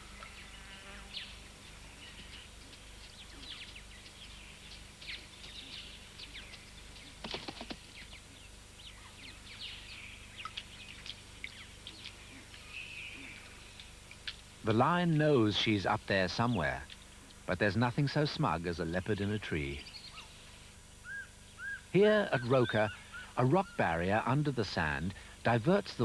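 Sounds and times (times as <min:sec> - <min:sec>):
loud bird calls: 0:00.0 - 0:14.3, 0:19.7 - 0:24.4
faint low hum: 0:00.0 - 0:26.0
small birds chirping: 0:00.0 - 0:26.0.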